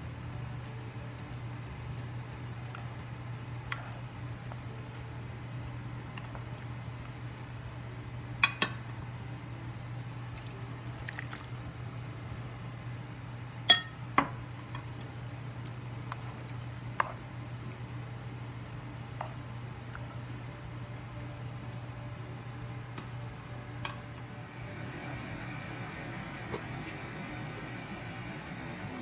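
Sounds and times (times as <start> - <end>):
steady low hum: 0.0 - 29.0
utensils clinking against dishes: 8.4 - 8.8, 13.7 - 14.4.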